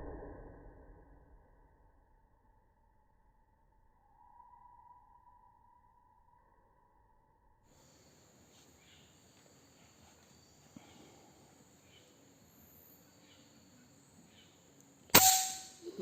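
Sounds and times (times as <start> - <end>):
high-pitched insect chorus: 7.7 - 16.0
air rifle shot: 15.1 - 15.8.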